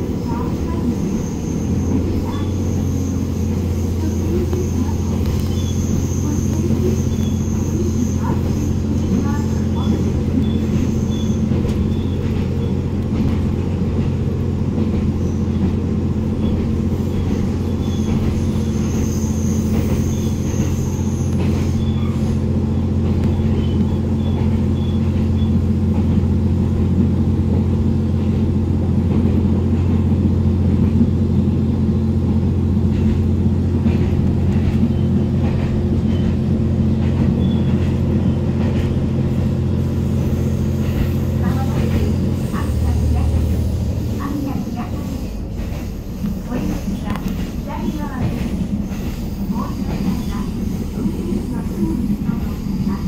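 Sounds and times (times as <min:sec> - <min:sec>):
railcar engine hum: 0:00.0 - 0:53.0.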